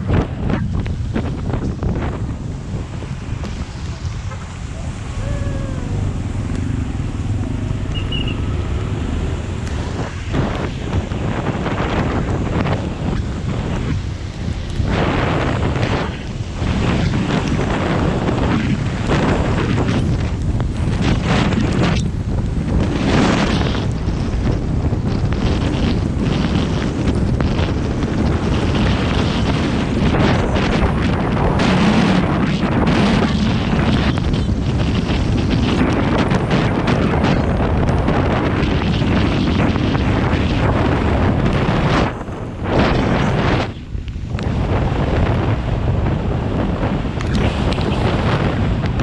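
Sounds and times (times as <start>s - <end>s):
road and wind noise: 0.0s - 49.0s
gusty hissing bursts: 2.6s - 10.5s
engine tone falling: 4.0s - 11.1s.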